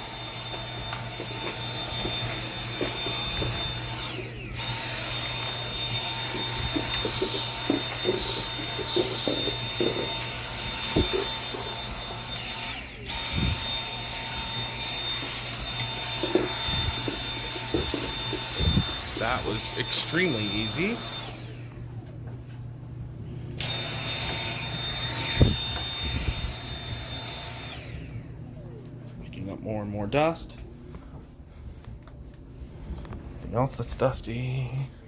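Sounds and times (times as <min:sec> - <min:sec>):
vacuum motor whine: 0:00.0 - 0:22.6, 0:23.3 - 0:29.2
nozzle knocking and scraping: 0:05.4 - 0:12.2, 0:15.0 - 0:19.9.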